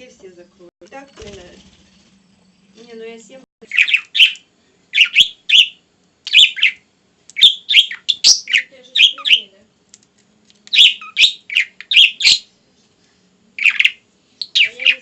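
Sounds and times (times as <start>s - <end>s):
bird chirping: 3.6s - 9.5s, 10.7s - 12.6s, 13.6s - 15.0s.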